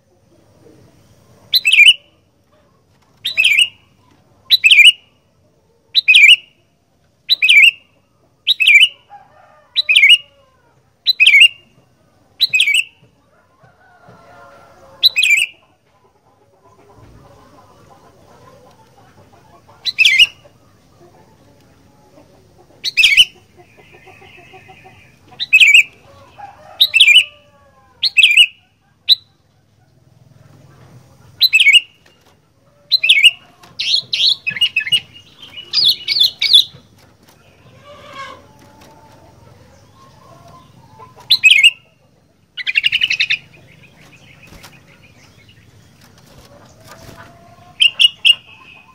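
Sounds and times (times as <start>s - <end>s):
bulbul calling: 1.5s - 2.1s, 3.2s - 3.8s, 4.5s - 5.1s, 6.0s - 6.6s, 7.2s - 9.0s, 9.8s - 10.3s, 11.0s - 11.7s, 12.4s - 13.0s, 15.0s - 15.6s, 19.7s - 20.5s, 22.7s - 26.0s, 26.8s - 27.3s, 28.0s - 29.4s, 31.4s - 32.1s, 32.9s - 36.9s, 39.8s - 42.0s, 42.6s - 45.7s, 47.7s - 48.9s.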